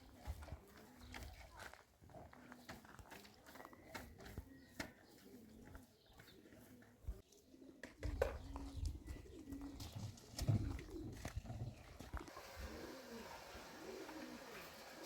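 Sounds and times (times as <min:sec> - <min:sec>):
bird cooing: 0:03.4 - 0:11.6, 0:12.2 - 0:15.0.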